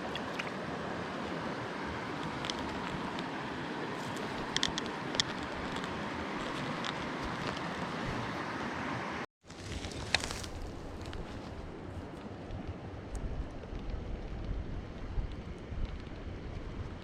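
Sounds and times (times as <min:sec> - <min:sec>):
stream water flowing: 0:00.0 - 0:10.3.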